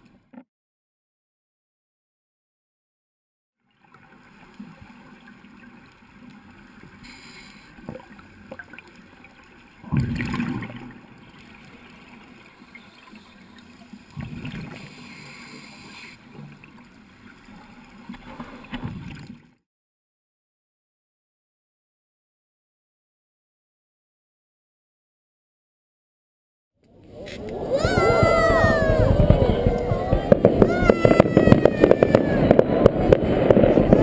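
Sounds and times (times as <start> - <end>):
low water hiss: 3.6 - 19.4.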